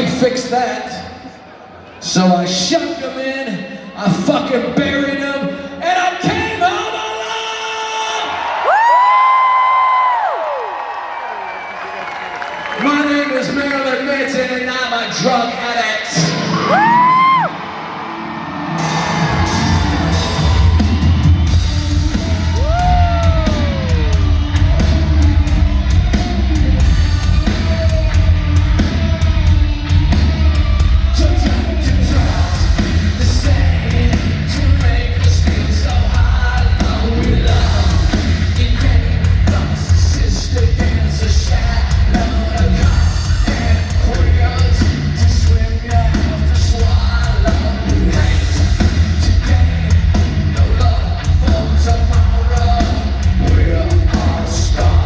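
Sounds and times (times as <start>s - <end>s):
rising and falling whoop: 8.5s - 12.3s, 16.6s - 26.8s
live rock band playing: 16.2s - 55.0s
person singing: 22.0s - 28.2s, 31.2s - 55.0s.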